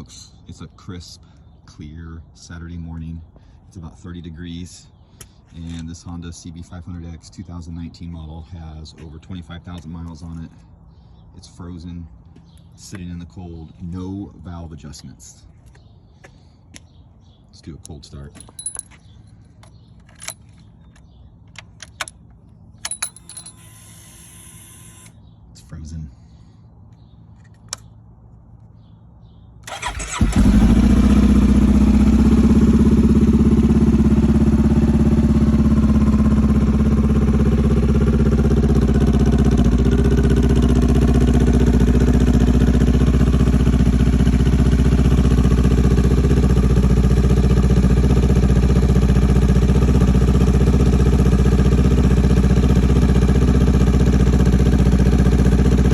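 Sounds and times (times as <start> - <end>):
starter motor cranking: 29.7 - 31.0
motorcycle engine idling: 29.7 - 55.9.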